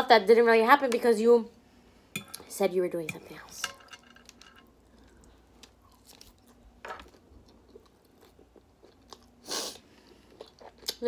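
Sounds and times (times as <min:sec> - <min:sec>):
soft crunching chewing: 0:04.3 - 0:11.0.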